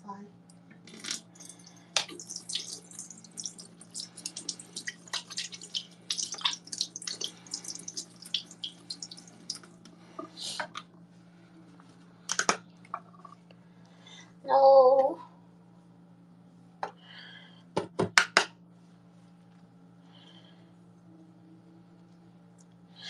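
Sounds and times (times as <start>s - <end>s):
steady low hum: 0.0s - 17.8s, 18.6s - 23.0s
water splashing and dripping: 1.0s - 9.8s.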